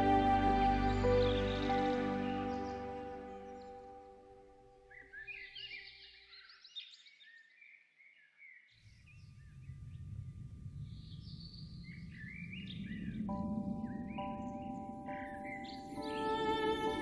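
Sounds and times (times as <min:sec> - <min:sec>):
soft sustained music notes: 0:00.0 - 0:06.5, 0:09.1 - 0:17.0
songbirds chirping and singing: 0:04.9 - 0:10.0, 0:10.9 - 0:17.0
low steady noise: 0:09.0 - 0:17.0.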